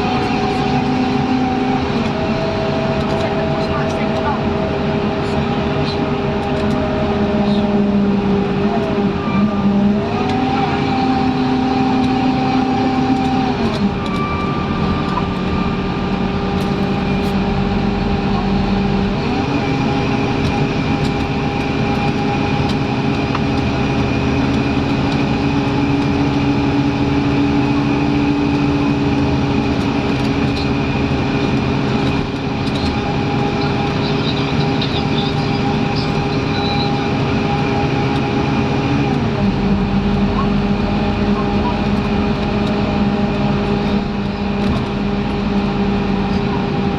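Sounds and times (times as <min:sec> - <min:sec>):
bus engine drone and whine: 0:00.0 - 0:46.9.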